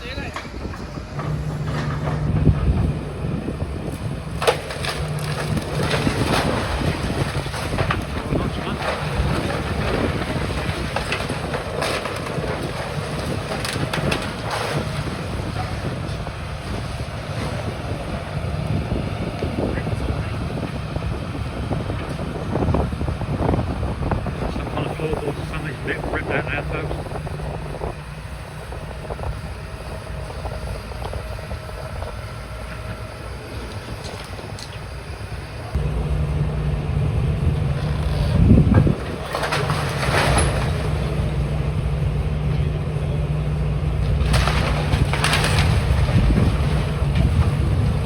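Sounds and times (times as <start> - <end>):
wind on microphone: 0.0 - 4.4, 13.2 - 35.9, 37.0 - 39.2, 44.1 - 48.0
excavator running: 0.0 - 48.0
low engine rumble: 0.0 - 48.0
debris crunching: 0.3 - 48.0.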